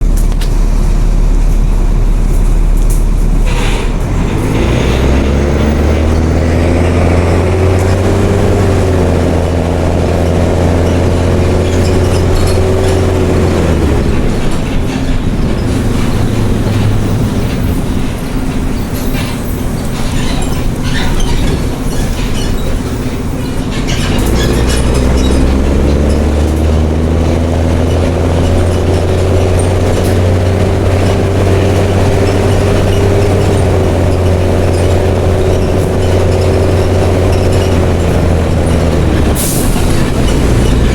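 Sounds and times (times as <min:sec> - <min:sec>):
bus diesel engine under load: 0:00.0 - 0:40.9.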